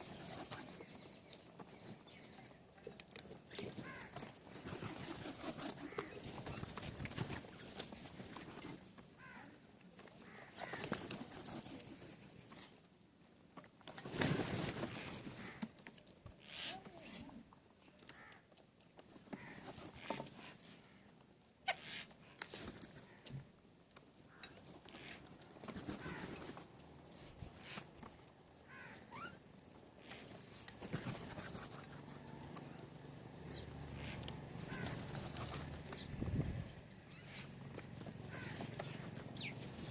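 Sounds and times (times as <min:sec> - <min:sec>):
birds tapping and pecking: 0:00.0 - 0:39.9.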